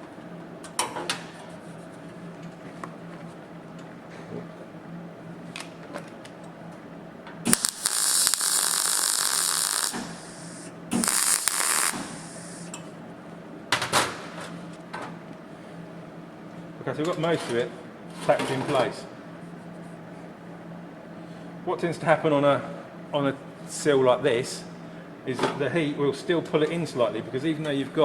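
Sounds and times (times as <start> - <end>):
welding arc hissing: 7.5 - 12.8.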